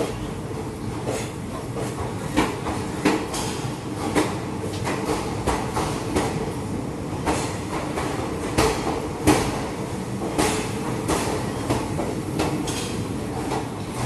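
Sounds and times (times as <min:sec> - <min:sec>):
train coaches rumbling: 0:00.0 - 0:14.0.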